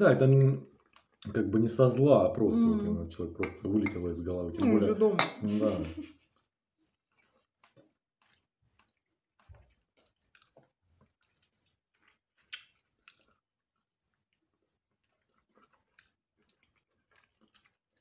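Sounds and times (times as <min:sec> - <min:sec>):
chewing and biting food: 0:00.2 - 0:02.1, 0:06.2 - 0:18.0
wet mouth clicks and smacks: 0:07.1 - 0:13.4, 0:14.1 - 0:18.0.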